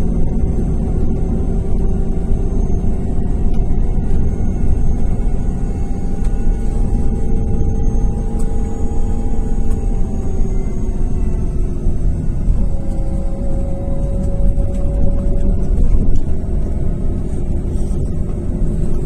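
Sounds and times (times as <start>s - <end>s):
bus diesel engine droning: 0.0s - 19.0s.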